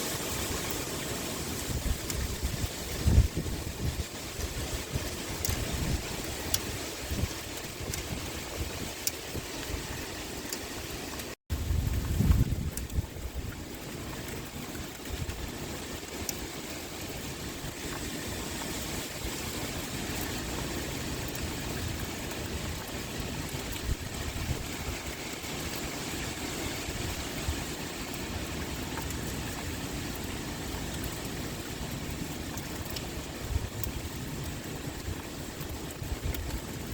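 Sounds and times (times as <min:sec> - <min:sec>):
rain pouring: 0:00.0 - 0:36.9
wind blowing low: 0:00.0 - 0:36.9.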